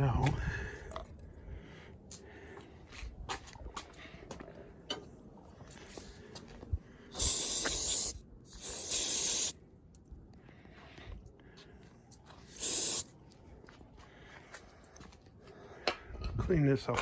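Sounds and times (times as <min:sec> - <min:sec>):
aerosol spray can hissing: 0:07.1 - 0:09.6, 0:12.5 - 0:13.1.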